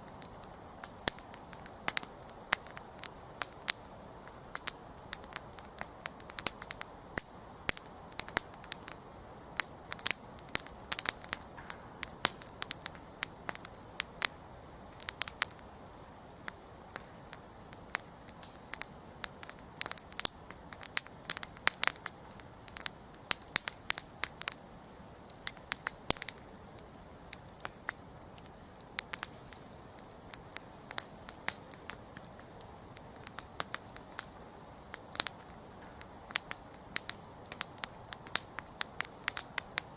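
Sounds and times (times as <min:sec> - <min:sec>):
campfire crackling and popping: 0:00.0 - 0:39.9
soft hiss of burning: 0:00.0 - 0:39.9.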